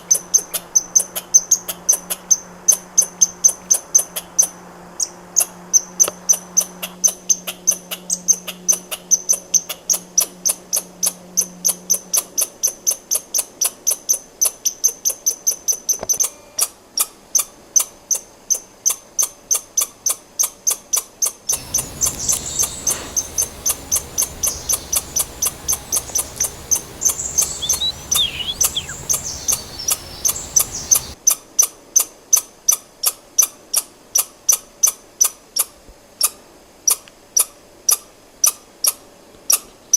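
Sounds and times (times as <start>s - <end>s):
squirrel calling: 21.5s - 31.2s
rushing background noise: 21.6s - 31.2s.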